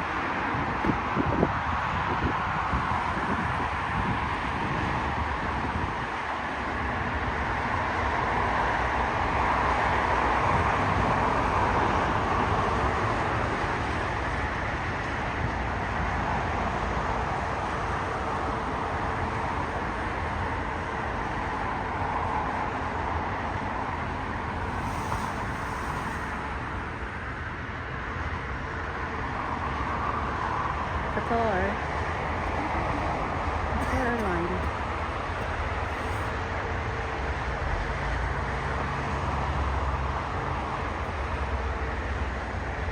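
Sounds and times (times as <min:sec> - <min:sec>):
jet airliner passing overhead: 0:24.3 - 0:28.6.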